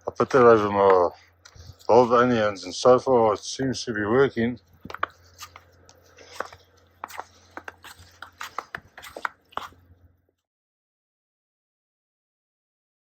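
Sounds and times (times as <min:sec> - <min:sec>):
low steady hum: 0:00.0 - 0:10.3
footsteps crunching in snow: 0:04.3 - 0:09.8.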